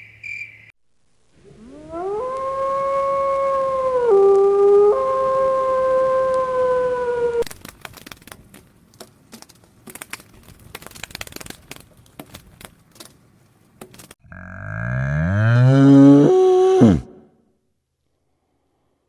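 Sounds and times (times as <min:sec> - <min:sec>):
dog howling: 0:01.6 - 0:07.4
faint clicks and rustling: 0:07.4 - 0:14.2.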